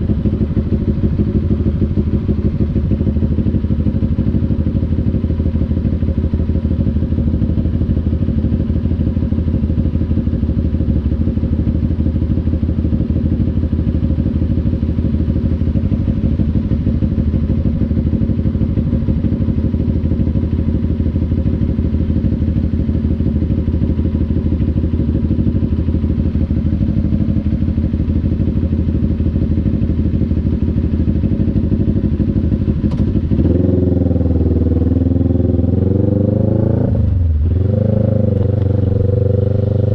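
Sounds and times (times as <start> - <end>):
motorcycle engine running: 0.0 - 39.9
sharp click: 32.9 - 33.1.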